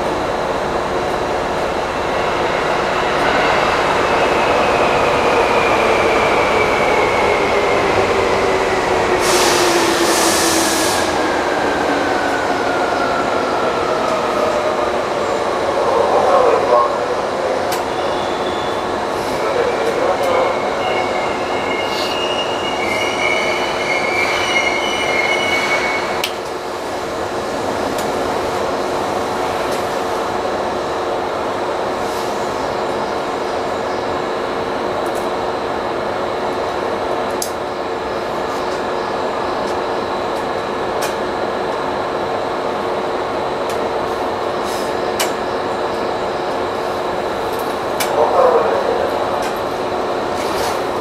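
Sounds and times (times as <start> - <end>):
train equipment humming: 0.0 - 31.4
high wavering squeal: 3.2 - 8.8, 20.4 - 26.2.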